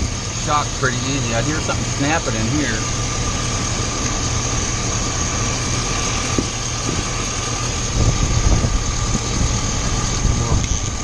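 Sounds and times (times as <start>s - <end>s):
car engine idling: 0.0s - 11.0s
heavy low bumps: 0.0s - 11.0s
high whine: 0.0s - 11.0s.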